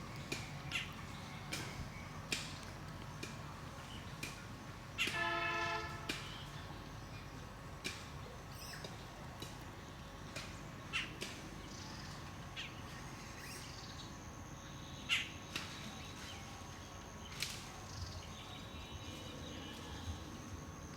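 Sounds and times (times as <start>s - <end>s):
birds calling: 0.0s - 7.3s, 9.7s - 16.4s
low outdoor background noise: 0.0s - 20.9s.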